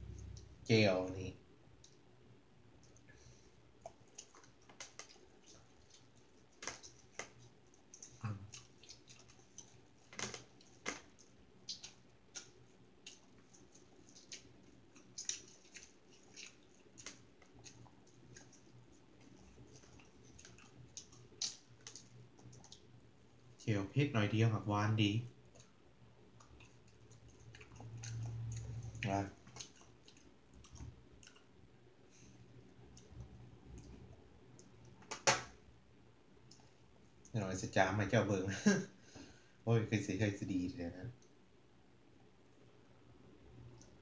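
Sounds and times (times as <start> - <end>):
mouth clicks and smacks: 3.8 - 22.9, 25.5 - 31.5
person chewing: 3.8 - 22.9, 25.4 - 31.5.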